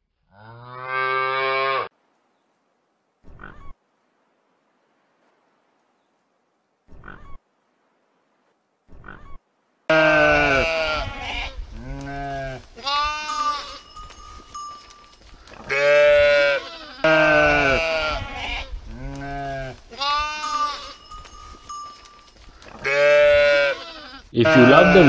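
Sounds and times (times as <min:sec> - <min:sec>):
sheep and goats bleating: 0:09.1 - 0:25.0.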